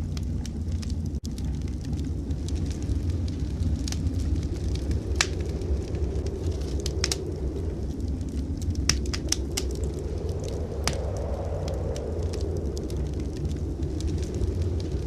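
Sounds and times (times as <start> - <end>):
low steady rumble: 0.0 - 15.0
wood fire crackling: 0.0 - 15.0
sharp pops of fire: 4.8 - 5.6, 8.8 - 9.8.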